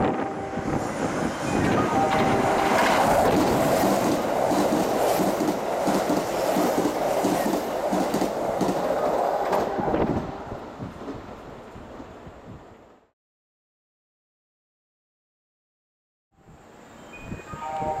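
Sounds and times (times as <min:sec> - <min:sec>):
train rushing past: 0:00.0 - 0:12.6.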